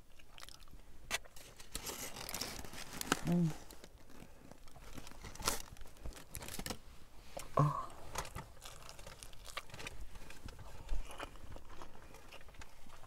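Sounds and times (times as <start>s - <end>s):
person chewing food: 0.0s - 1.4s, 7.4s - 13.0s.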